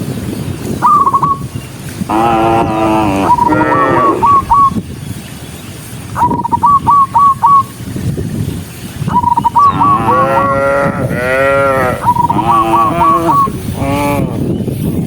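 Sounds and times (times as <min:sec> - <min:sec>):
cattle mooing: 0:02.1 - 0:04.4, 0:09.7 - 0:14.4.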